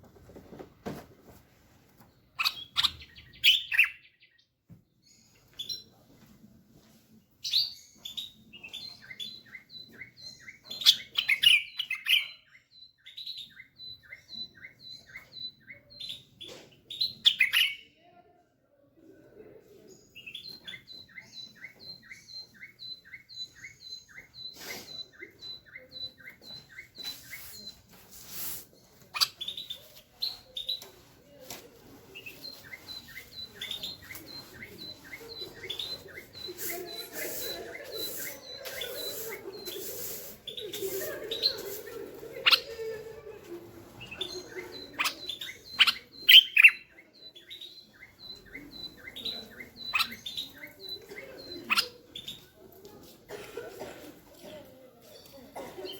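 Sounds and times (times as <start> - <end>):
bird clicks and scratchy calls: 2.4 - 3.9, 28.5 - 31.6, 32.2 - 42.7, 44.0 - 52.8
bulbul singing: 7.4 - 17.9, 20.2 - 28.0, 32.1 - 52.6.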